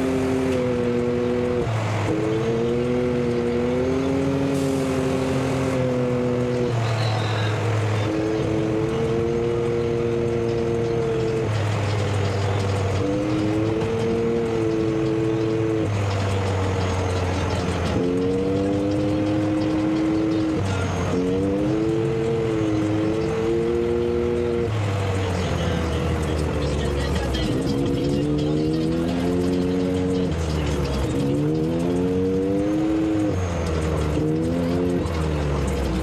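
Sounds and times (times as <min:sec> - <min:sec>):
vehicle engines and road noise: 0:00.0 - 0:36.0.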